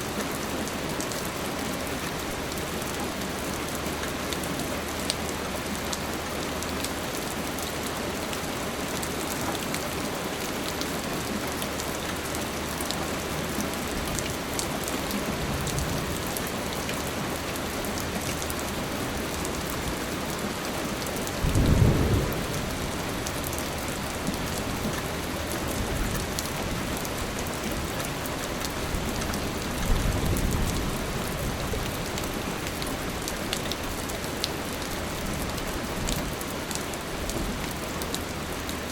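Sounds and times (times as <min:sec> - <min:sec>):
steady rain falling: 0:00.0 - 0:38.9
low rumbles of thunder: 0:21.4 - 0:24.4.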